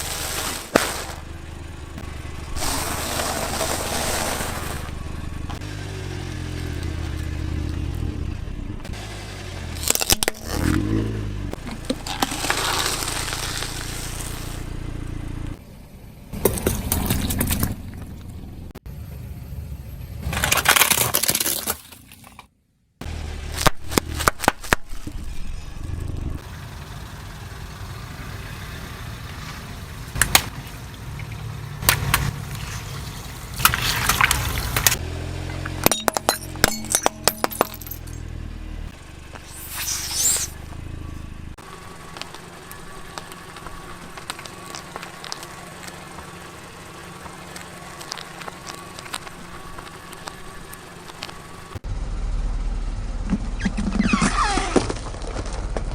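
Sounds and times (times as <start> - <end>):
tyres crushing objects: 0.0 - 1.3, 2.5 - 5.0, 11.6 - 14.6, 31.8 - 35.0
car engine hum: 0.0 - 21.1, 23.0 - 55.9.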